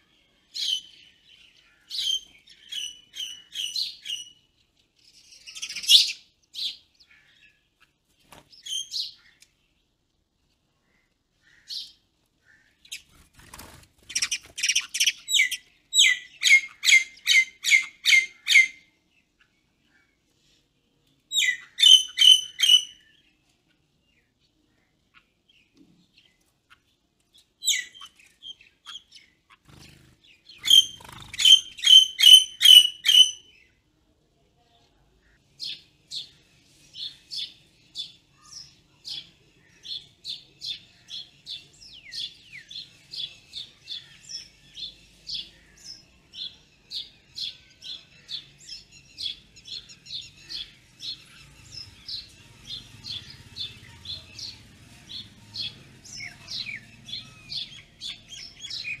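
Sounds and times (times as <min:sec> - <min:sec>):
birds chirping: 0:00.0 - 0:33.8, 0:35.2 - 0:59.0.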